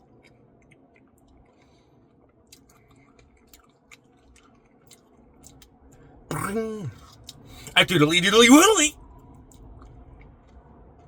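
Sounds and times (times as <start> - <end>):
faint chewing: 2.5 - 5.7.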